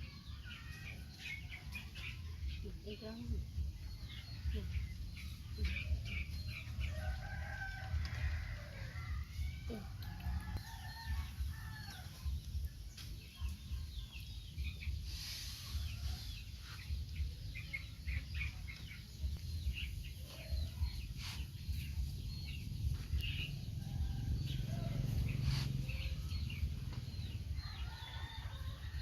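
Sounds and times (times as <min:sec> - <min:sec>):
chickens clucking and peeping: 0:00.0 - 0:29.0
low rumble: 0:14.5 - 0:27.8.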